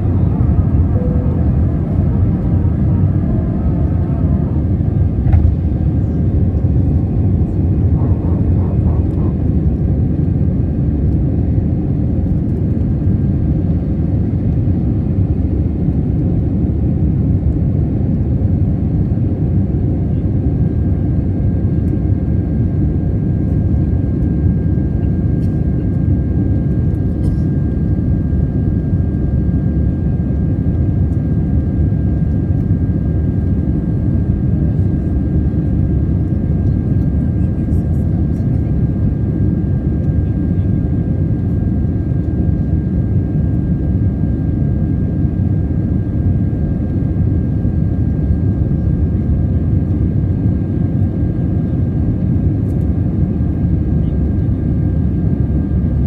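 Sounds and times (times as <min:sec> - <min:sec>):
faint steady whine: 0:00.0 - 0:07.1
airliner engines rumbling: 0:00.0 - 0:56.0.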